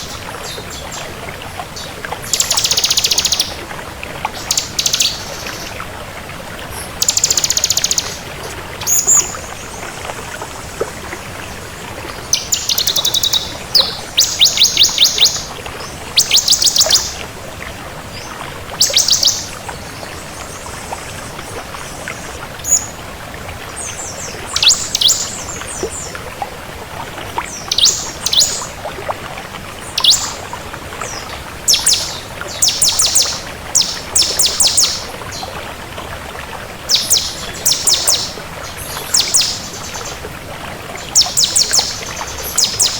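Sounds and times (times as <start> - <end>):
bird singing high ticking notes: 2.2 - 3.6, 4.4 - 5.7, 7.0 - 8.2, 12.3 - 15.6, 16.2 - 17.2, 18.8 - 19.6, 24.5 - 25.5, 27.6 - 28.7, 29.8 - 30.4, 31.1 - 35.4, 36.9 - 40.0, 41.0 - 42.9.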